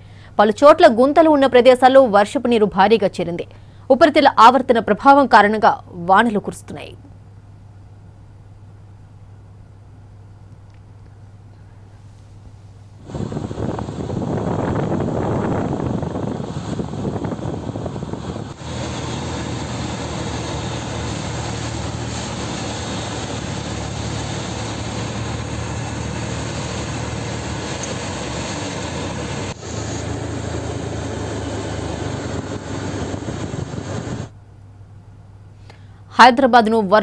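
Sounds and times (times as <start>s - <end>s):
low engine hum: 10.7s - 34.5s
heavy rain hissing: 13.0s - 34.3s
tyres on wet road: 13.2s - 34.3s.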